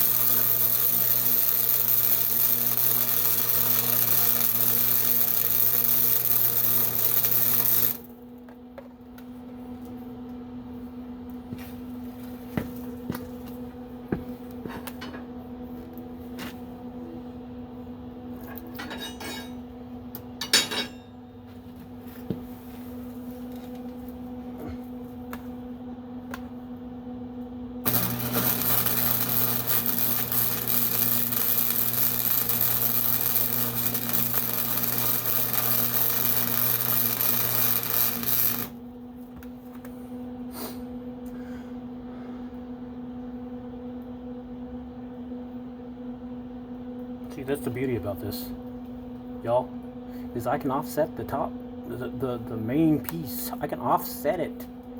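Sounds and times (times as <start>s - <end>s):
loud hissing tool: 0.0s - 8.1s, 27.9s - 38.8s
steady hum: 0.0s - 54.9s.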